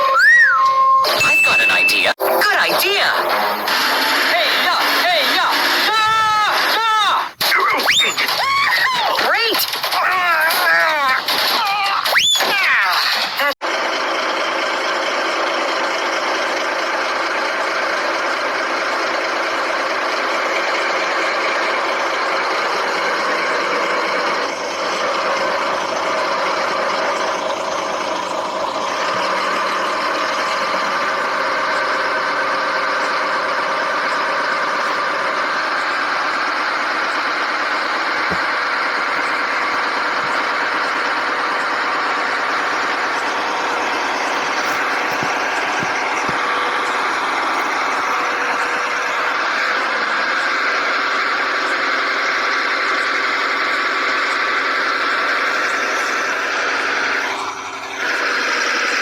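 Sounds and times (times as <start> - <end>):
toy truck engine idling: 0.0 - 12.5, 13.1 - 59.0.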